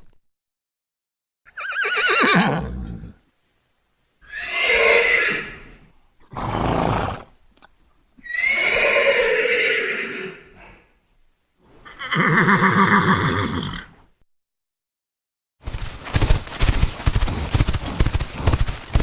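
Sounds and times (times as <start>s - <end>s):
horse neighing: 1.5s - 3.2s, 4.2s - 7.3s, 8.2s - 10.8s, 11.8s - 14.0s.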